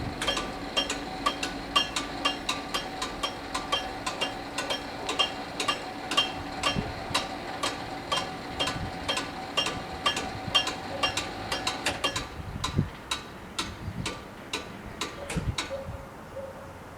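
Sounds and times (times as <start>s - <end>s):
level crossing bells ringing: 0.2s - 12.2s.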